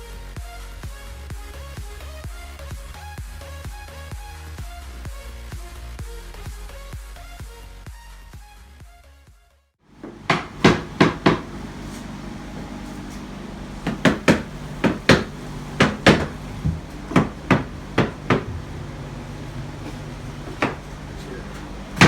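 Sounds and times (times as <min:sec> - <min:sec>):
steady low hum: 0:09.9 - 0:22.0
sharp hammer strikes: 0:10.0 - 0:11.5, 0:13.8 - 0:18.8.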